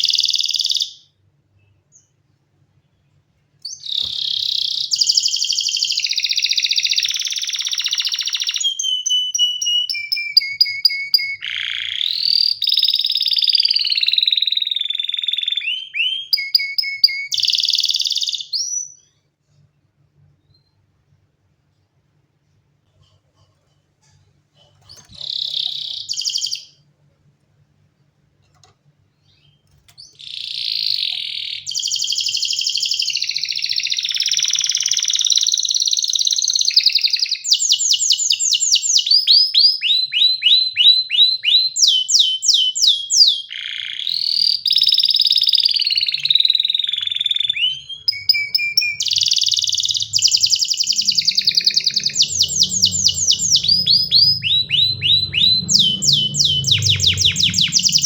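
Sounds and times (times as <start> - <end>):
canary singing: 0.0 - 2.2, 3.6 - 19.1, 24.6 - 26.9, 29.2 - 58.0.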